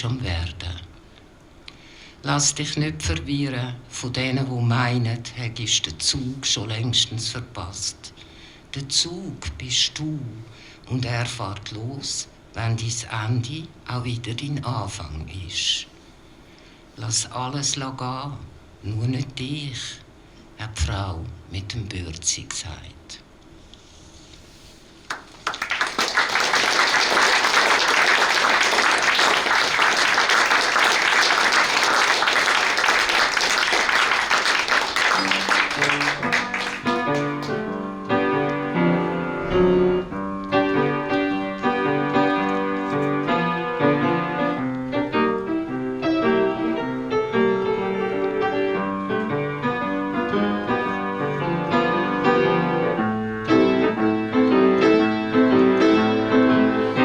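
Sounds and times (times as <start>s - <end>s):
audience applauding: 25.1s - 37.6s
solo piano playing: 35.0s - 57.0s.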